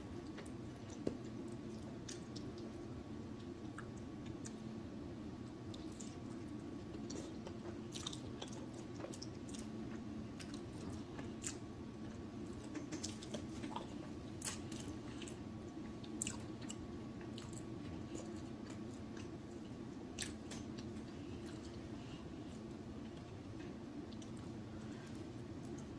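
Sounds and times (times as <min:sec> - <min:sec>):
low background hum: 0:00.0 - 0:25.9
wet chewing: 0:05.7 - 0:21.8.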